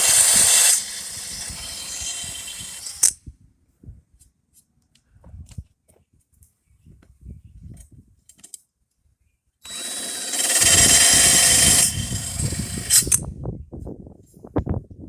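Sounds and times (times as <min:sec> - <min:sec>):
power drill grinding mower blade: 0:00.0 - 0:03.2, 0:09.7 - 0:13.3.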